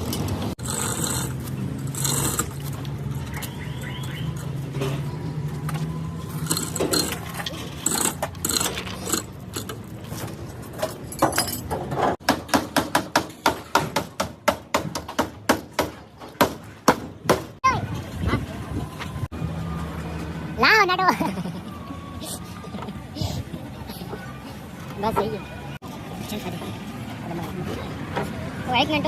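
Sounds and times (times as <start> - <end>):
rapid hammer strikes: 12.2 - 17.6.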